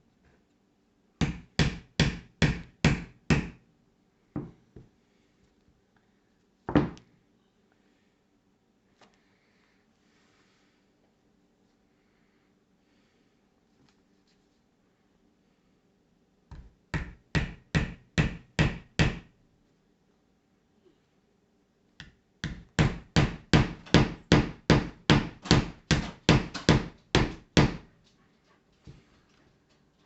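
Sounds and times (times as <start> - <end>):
hammer striking nails into wood: 1.2 - 3.6, 16.5 - 19.3, 22.0 - 27.9.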